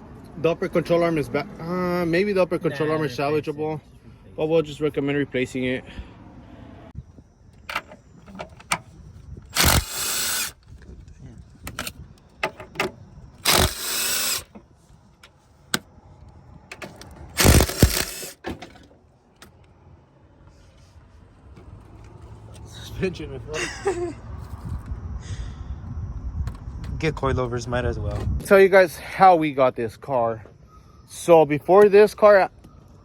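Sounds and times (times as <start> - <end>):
pneumatic impact wrench bursts: 9.5 - 10.6, 13.4 - 14.6, 17.3 - 18.4.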